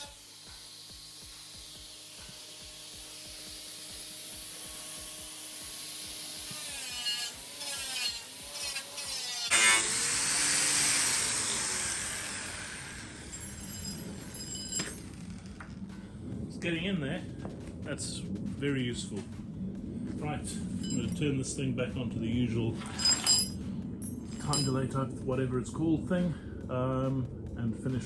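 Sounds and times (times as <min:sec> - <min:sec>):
power tool disc scrubbing metal: 0:00.0 - 0:15.5, 0:22.8 - 0:23.6.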